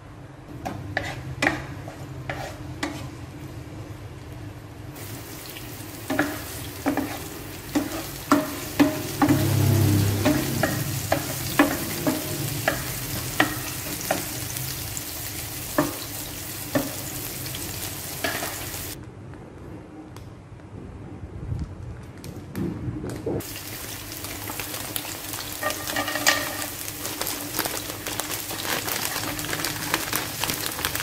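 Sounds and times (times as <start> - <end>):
spatula knocking and scraping pan: 0.6 - 3.2, 6.0 - 14.5, 15.7 - 17.2, 18.2 - 19.0, 25.6 - 26.8
onions sizzling in hot oil: 4.9 - 19.0, 23.4 - 31.0.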